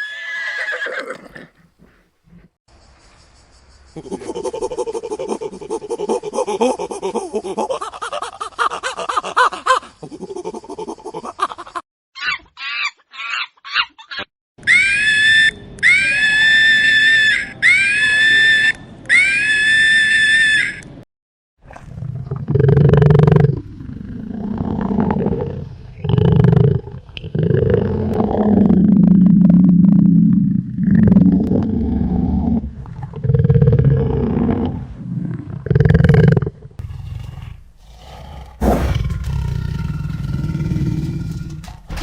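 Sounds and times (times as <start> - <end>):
long high-pitched animal calls: 14.6 - 20.8
deep animal roar: 21.7 - 42.0
animal grunting: 36.8 - 42.0.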